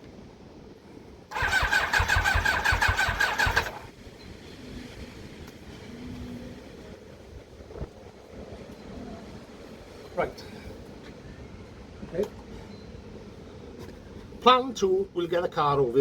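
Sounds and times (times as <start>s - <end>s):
electric starter cranking engine: 1.3s - 3.9s.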